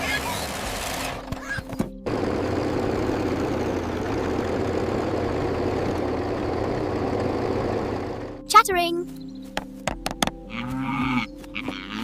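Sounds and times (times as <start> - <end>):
vehicle engine running: 0.0 - 9.2.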